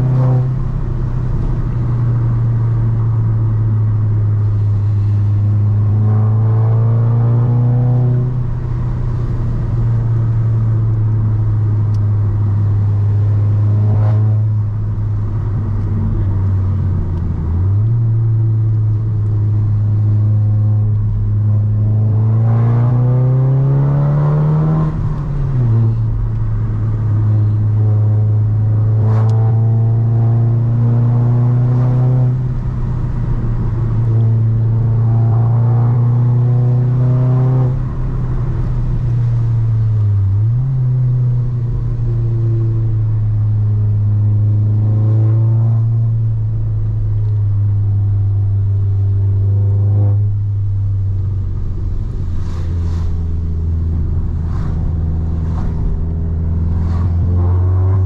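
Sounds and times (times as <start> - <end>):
car engine running: 0.0 - 22.4, 37.5 - 58.0.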